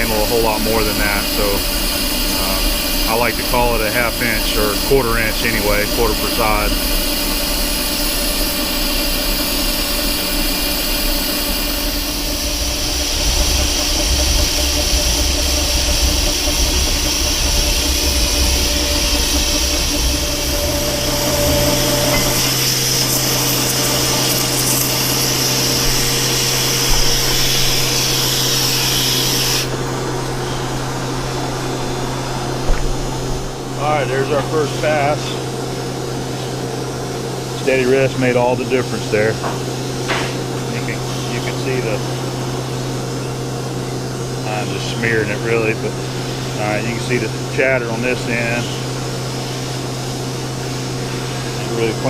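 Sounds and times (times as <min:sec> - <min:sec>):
low hum: 0:00.0 - 0:29.0, 0:29.6 - 0:37.0
coolant sprayer hissing: 0:00.0 - 0:52.0
metal lathe cutting steel: 0:00.0 - 0:52.0.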